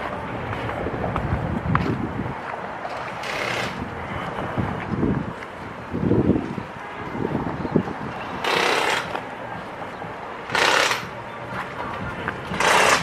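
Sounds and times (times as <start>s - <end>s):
pneumatic impact wrench: 3.2s - 3.8s, 8.4s - 9.1s, 10.5s - 11.1s, 12.6s - 13.0s.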